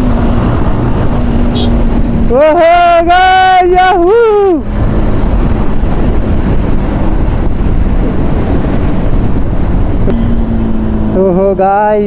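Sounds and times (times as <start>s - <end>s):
wind rush on microphone: 0.0s - 12.0s
motorcycle engine running: 8.2s - 12.0s.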